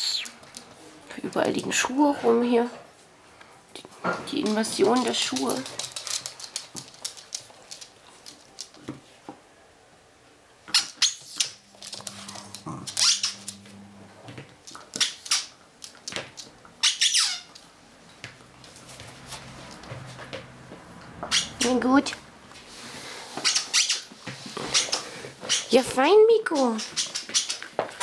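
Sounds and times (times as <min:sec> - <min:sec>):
squeaky dog toy squeaking: 0:10.7 - 0:11.6, 0:13.0 - 0:13.5, 0:16.8 - 0:17.5, 0:21.3 - 0:21.7.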